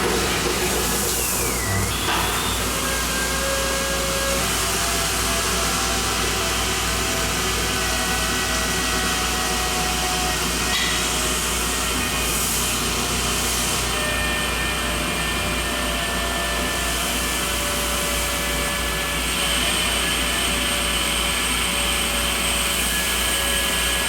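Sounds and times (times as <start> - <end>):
lathe machine running: 0.0 - 24.0
faint whining tones: 1.1 - 3.5.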